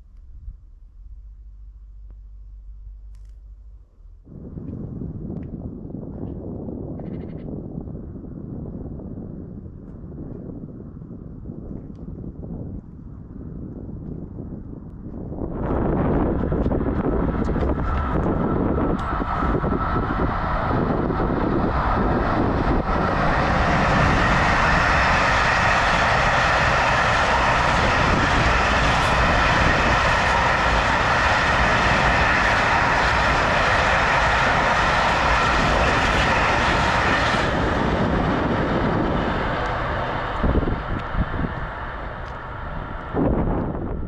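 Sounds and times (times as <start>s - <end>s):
freight train wheels rumbling: 15.0s - 44.0s.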